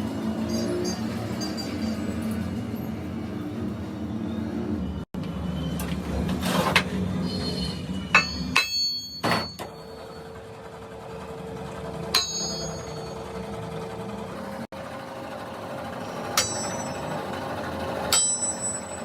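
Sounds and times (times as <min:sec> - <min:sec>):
shop machine humming: 0:00.0 - 0:19.0.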